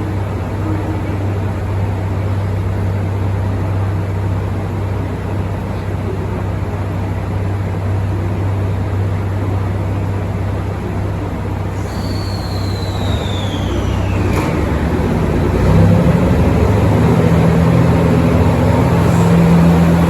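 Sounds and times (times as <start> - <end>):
train engine drone: 0.0 - 20.0
rumbling hiss: 10.6 - 20.0.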